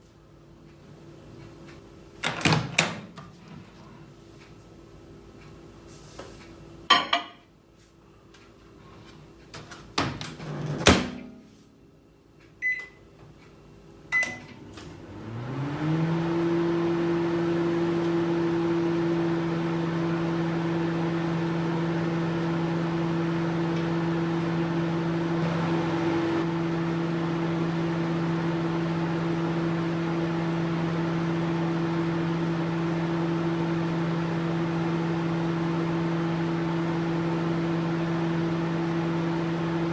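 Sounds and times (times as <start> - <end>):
microwave oven humming: 9.1 - 39.9
short keypad beeps: 12.6 - 13.0, 14.1 - 14.5.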